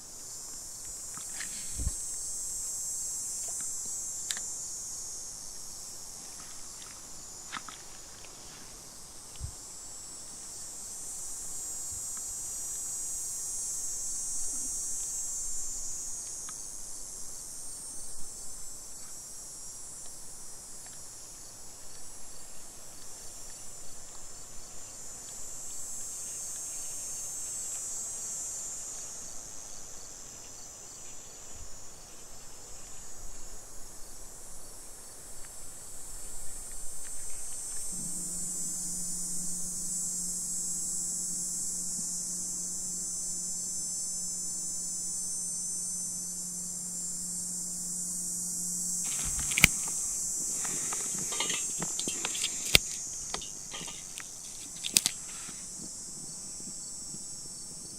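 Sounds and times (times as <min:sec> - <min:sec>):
insects trilling: 0:00.0 - 0:57.9
steady low hum: 0:31.2 - 0:57.9.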